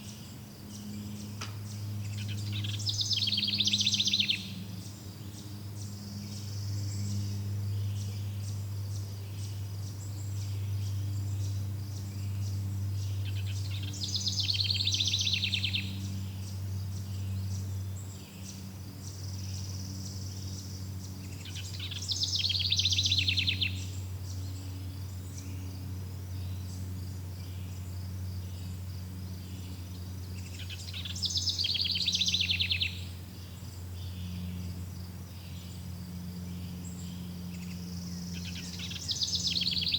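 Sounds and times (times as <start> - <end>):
crickets chirping: 0.0 - 39.9
steady low hum: 0.0 - 39.9.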